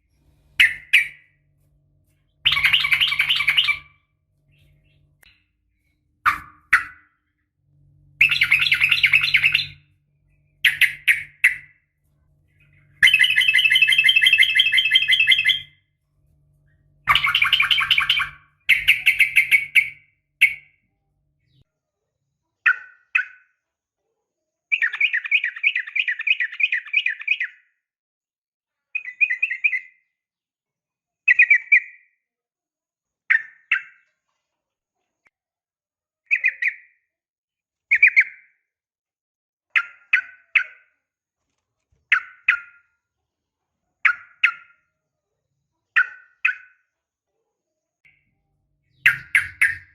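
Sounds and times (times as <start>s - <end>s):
faint low hum: 0.0s - 6.7s, 7.3s - 22.4s
bird chattering calls: 0.6s - 1.2s, 2.4s - 3.9s, 8.2s - 9.8s, 17.1s - 20.6s, 48.9s - 49.9s.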